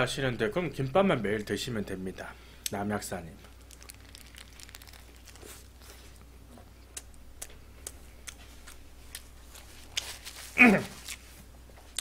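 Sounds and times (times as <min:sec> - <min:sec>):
steady low hum: 0:00.0 - 0:12.0
faint chewing: 0:03.4 - 0:12.0
soft mouth clicks: 0:06.9 - 0:08.8.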